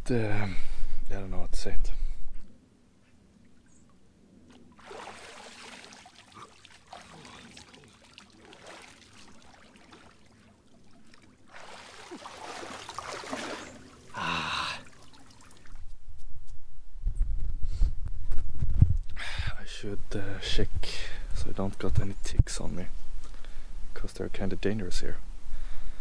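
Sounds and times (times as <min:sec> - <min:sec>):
water splashing and trickling: 0:04.5 - 0:15.8.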